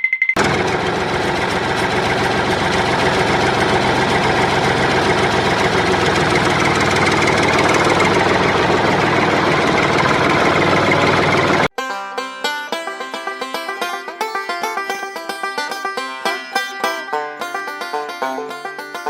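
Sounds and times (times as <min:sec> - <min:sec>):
engine rattling drone: 0:00.4 - 0:11.7.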